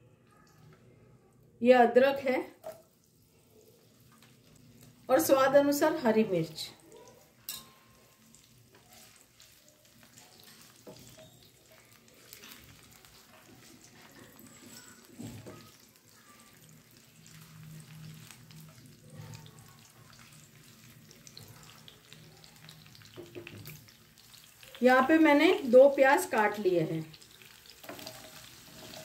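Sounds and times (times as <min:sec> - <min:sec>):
food frying with faint sizzle: 0:00.0 - 0:29.0
spatula scraping a pan: 0:07.4 - 0:15.9, 0:27.8 - 0:29.0.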